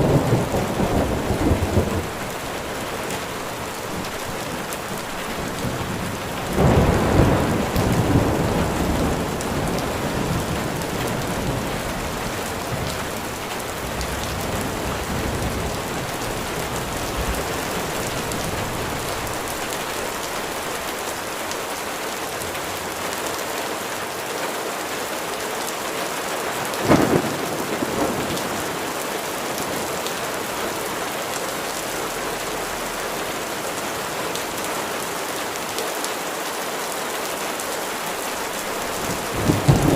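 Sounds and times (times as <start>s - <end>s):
thunder rumbling: 0.0s - 21.4s, 26.8s - 29.8s, 38.4s - 39.9s
steady rain falling: 0.0s - 39.9s
sharp thunderclap: 5.7s - 19.9s, 26.8s - 28.8s, 38.8s - 39.9s.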